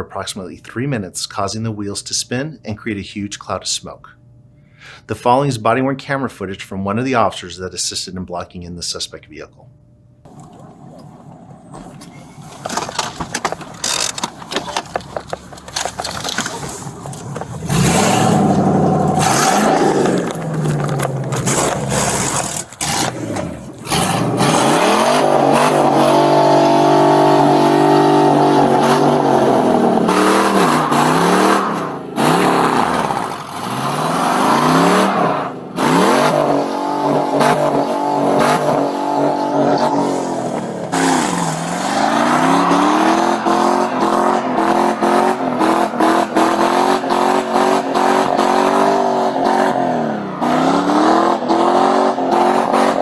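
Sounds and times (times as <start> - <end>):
wheels spinning in place: 10.3 - 25.0
truck engine revving hard: 16.7 - 53.0.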